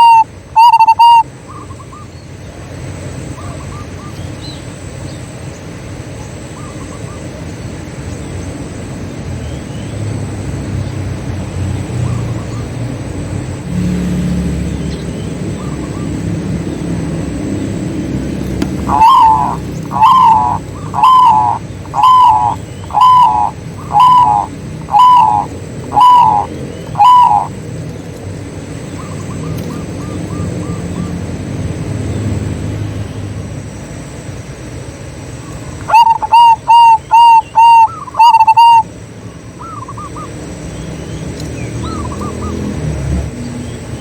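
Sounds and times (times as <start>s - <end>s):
doves cooing: 0.0s - 1.2s, 16.9s - 31.2s, 35.6s - 38.9s
steady low hum: 0.0s - 42.5s.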